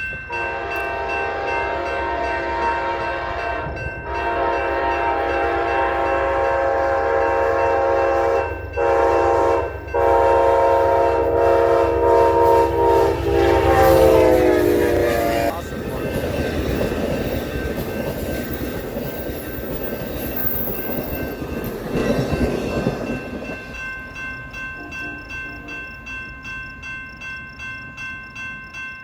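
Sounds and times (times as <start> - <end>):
model train air horn: 0.3 - 15.7.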